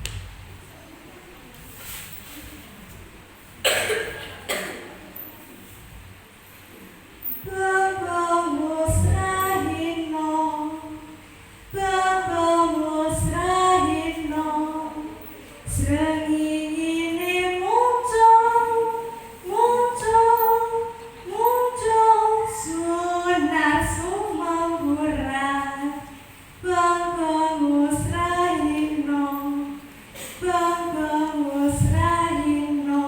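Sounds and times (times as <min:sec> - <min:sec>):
woman singing unaccompanied: 0:07.4 - 0:33.0.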